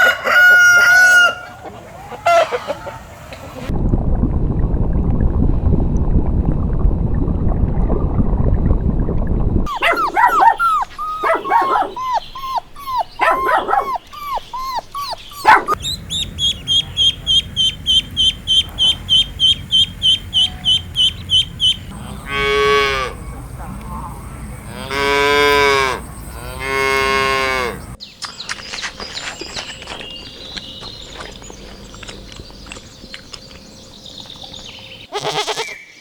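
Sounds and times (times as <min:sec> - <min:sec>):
puppy yipping and whimpering: 0:09.7 - 0:16.2
rapid high chirping: 0:09.7 - 0:21.9
cattle mooing: 0:21.9 - 0:28.0.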